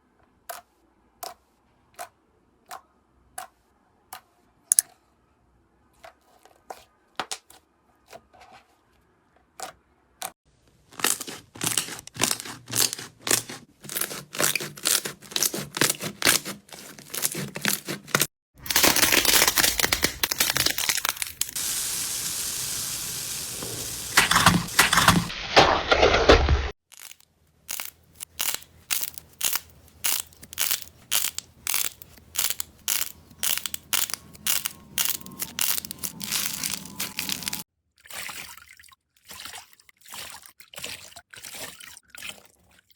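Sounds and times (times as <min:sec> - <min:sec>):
slime popping and crackling: 0:10.9 - 0:15.5, 0:18.6 - 0:21.6, 0:26.9 - 0:37.6.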